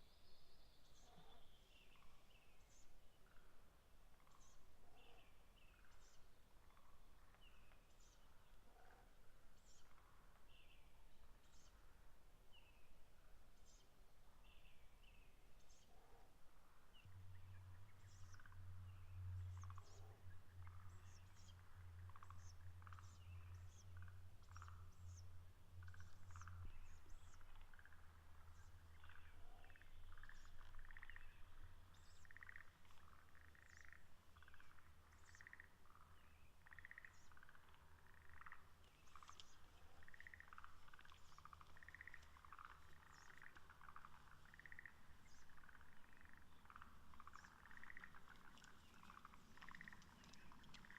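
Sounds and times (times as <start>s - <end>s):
steady low hum: 16.9s - 50.9s.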